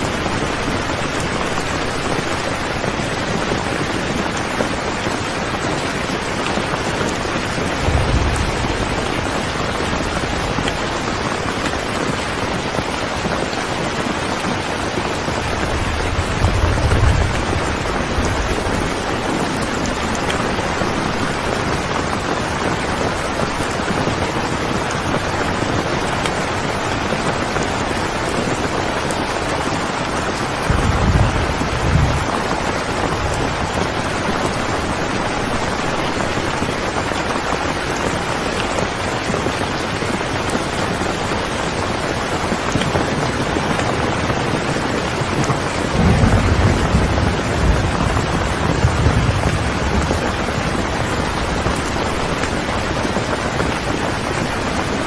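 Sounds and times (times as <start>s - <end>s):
thunder rumbling: 0.0s - 39.6s, 40.2s - 55.0s
steady rain: 0.0s - 55.0s.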